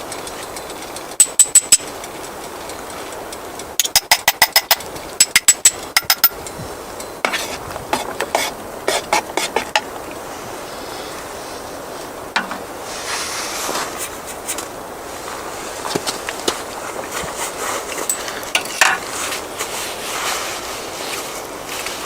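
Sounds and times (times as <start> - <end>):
metal taps ringing: 0.1 - 1.9, 3.8 - 7.3
metal scraping: 7.2 - 9.9
dull metal knocks: 12.4 - 12.7.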